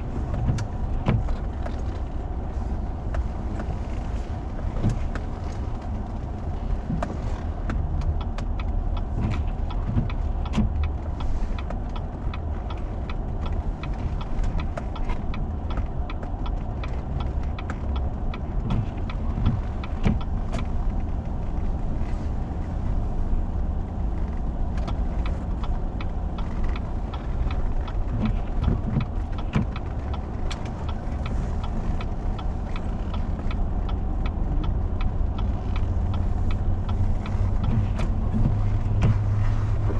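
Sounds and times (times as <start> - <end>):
vehicle engine and tyres rumbling: 0.0 - 39.9
small clicks and knocks: 23.6 - 39.9.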